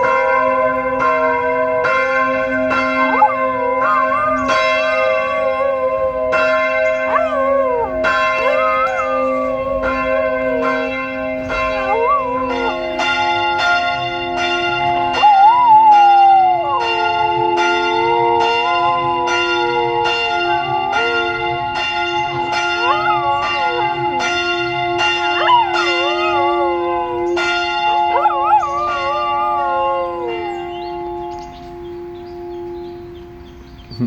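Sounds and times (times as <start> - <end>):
dog howling: 0.0 - 32.1
church bell ringing: 0.0 - 33.9.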